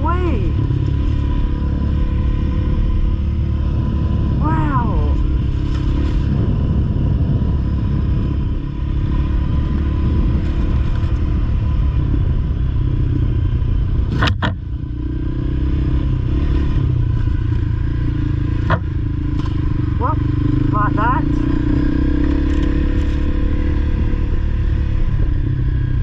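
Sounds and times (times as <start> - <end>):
dirt bike engine running: 0.0 - 26.0.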